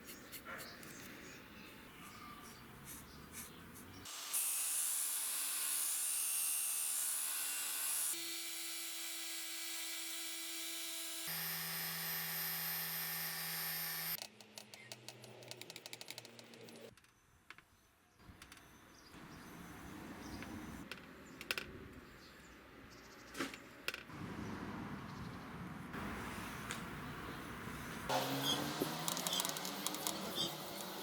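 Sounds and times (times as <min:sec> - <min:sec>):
electric power tool motors running: 0:04.1 - 0:14.2, 0:28.1 - 0:31.0.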